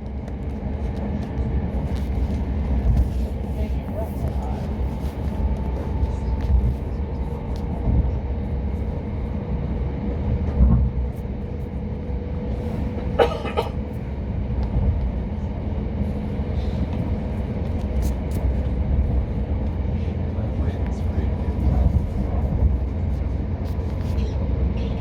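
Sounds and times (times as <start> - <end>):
train coach rumbling on track: 0.0 - 25.0.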